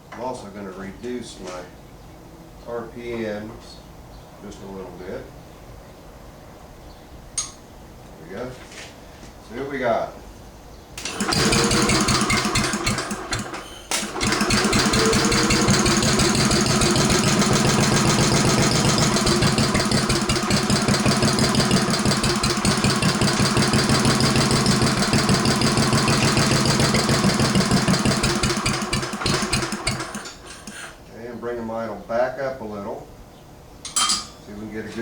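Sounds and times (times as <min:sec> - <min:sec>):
single-cylinder engine running: 0:11.0 - 0:31.0.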